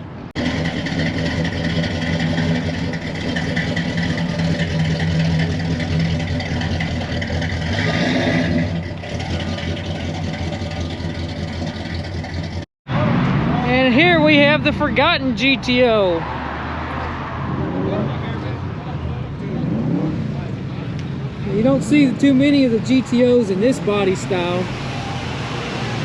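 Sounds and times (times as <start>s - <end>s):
car engine running: 0.0s - 16.3s.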